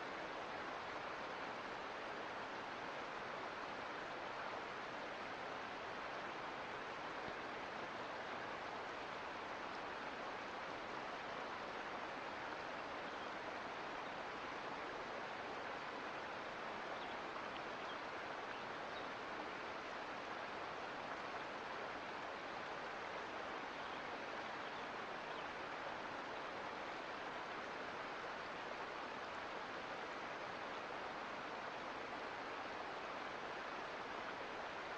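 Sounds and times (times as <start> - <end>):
creek water flowing over rocks: 0.0 - 34.9.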